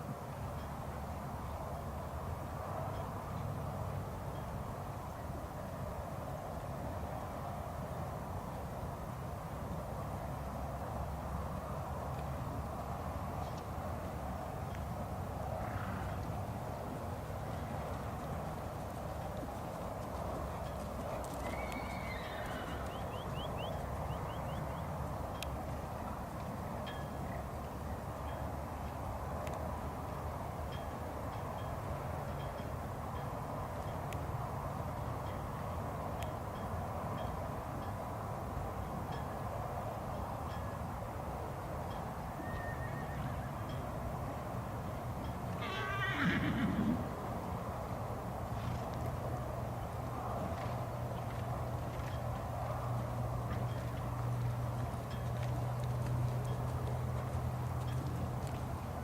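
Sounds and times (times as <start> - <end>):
horse whinnying: 21.4 - 23.2, 42.4 - 43.4, 45.6 - 47.1.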